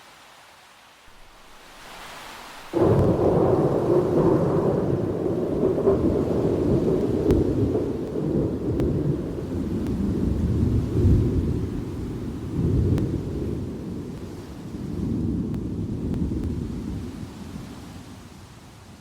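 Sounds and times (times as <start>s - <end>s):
thunder rumble and crack: 2.7s - 17.6s.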